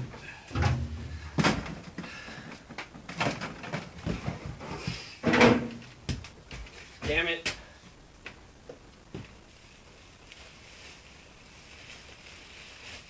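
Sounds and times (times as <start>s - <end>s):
knocks and clatter of objects: 0.0s - 7.6s
low thud: 0.5s - 1.7s.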